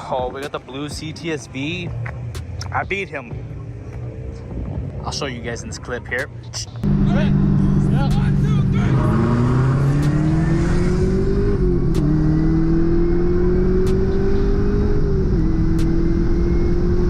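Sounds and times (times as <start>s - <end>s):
car engine accelerating hard: 6.8s - 17.0s.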